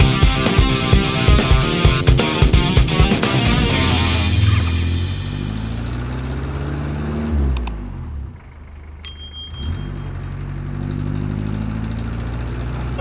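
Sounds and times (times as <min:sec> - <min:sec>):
truck engine idling: 0:07.6 - 0:13.0
bright bell-like ding: 0:09.0 - 0:10.2.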